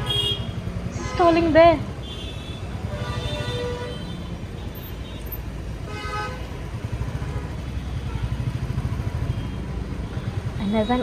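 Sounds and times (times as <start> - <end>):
vehicle horn toot: 0.0 - 1.3, 2.0 - 6.6.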